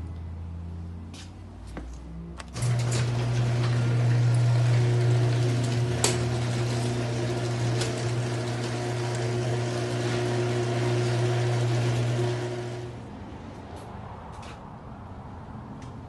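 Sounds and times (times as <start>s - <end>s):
garage door opener motor humming: 2.5s - 13.1s.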